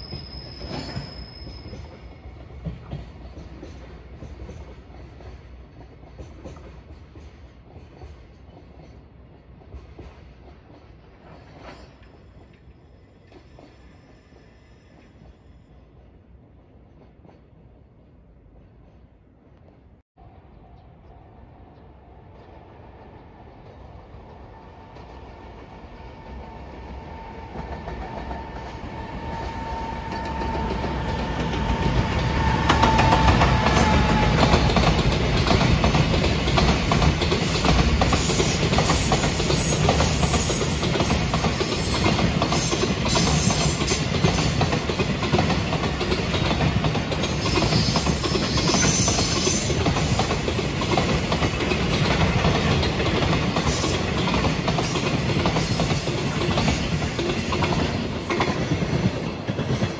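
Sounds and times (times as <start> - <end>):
locomotive high tone: 0.0 - 2.8, 25.8 - 35.4
wheels clacking over rail joints: 27.1 - 59.9.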